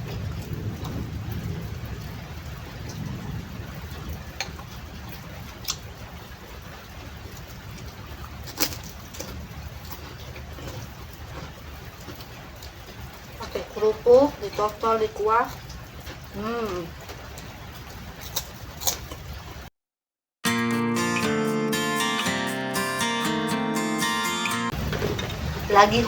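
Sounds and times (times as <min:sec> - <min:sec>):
low rumble: 0:00.0 - 0:05.6
steady rain falling: 0:00.0 - 0:19.7, 0:24.7 - 0:26.0.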